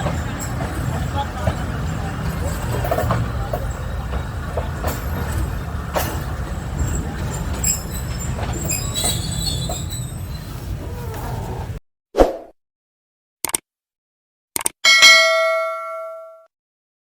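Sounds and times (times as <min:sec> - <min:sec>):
wheel clacks over rail joints: 0:00.0 - 0:11.3
train coaches rumbling: 0:00.0 - 0:11.8
wheel and brake squeal: 0:00.0 - 0:11.8.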